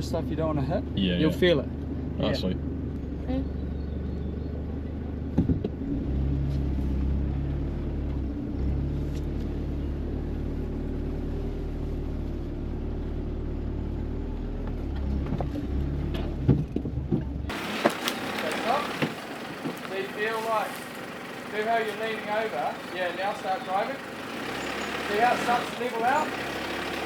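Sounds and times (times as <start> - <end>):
vehicle engine low drone: 0.0 - 27.0
vehicle knocks: 16.4 - 20.4.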